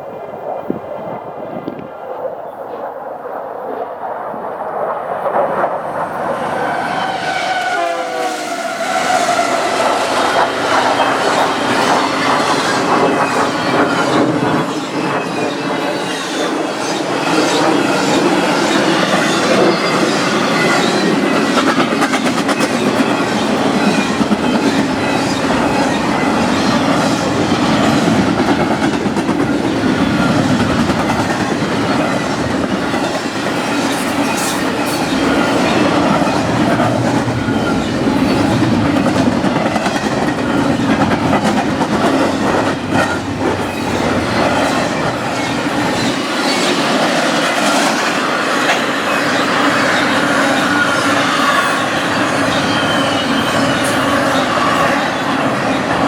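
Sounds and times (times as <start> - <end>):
diesel locomotives running: 6.6 - 56.0
locomotive horn: 6.8 - 10.2
train wheels clattering over rail joints: 9.3 - 56.0.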